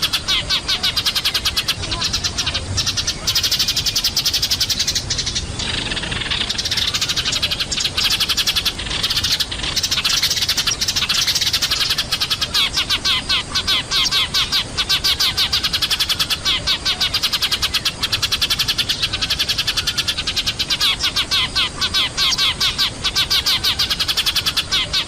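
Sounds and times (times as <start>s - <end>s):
sparrows chirping: 0.0s - 25.0s.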